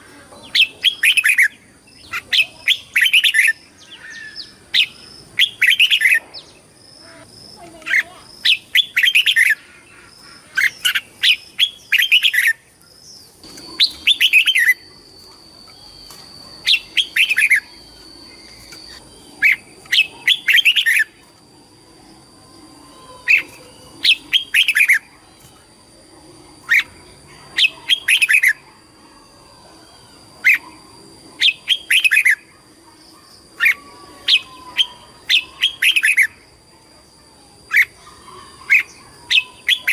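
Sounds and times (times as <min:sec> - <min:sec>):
bulbul singing: 0:00.0 - 0:25.6, 0:30.0 - 0:32.6, 0:37.6 - 0:39.9.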